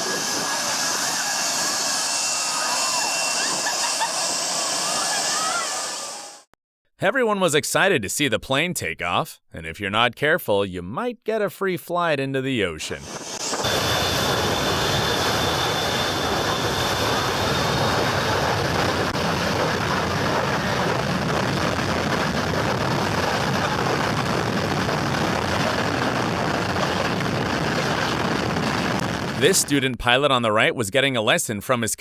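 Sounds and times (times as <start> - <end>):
high engine whine: 0.0 - 6.5, 13.0 - 29.4
jet engines roaring: 0.0 - 6.5, 12.9 - 29.8.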